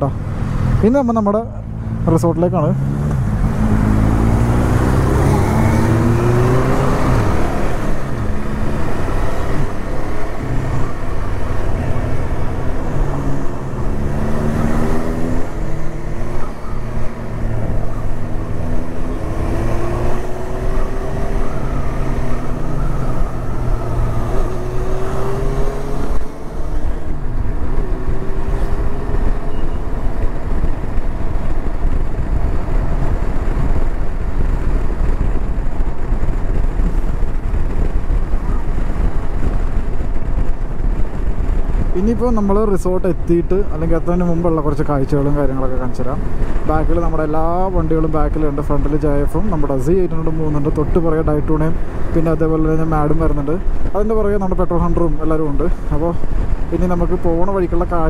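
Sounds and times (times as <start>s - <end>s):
motorcycle engine accelerating: 0.0s - 58.0s
road and wind noise: 0.0s - 58.0s.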